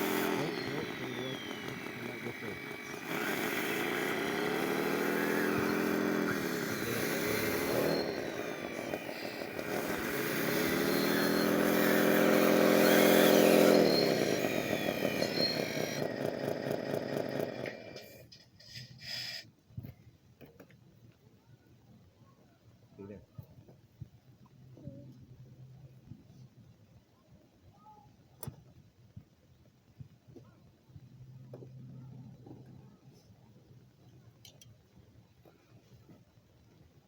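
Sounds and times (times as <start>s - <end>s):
thin whines sliding down in pitch: 0.0s - 18.2s
electric motors and gearing whining: 0.0s - 19.4s.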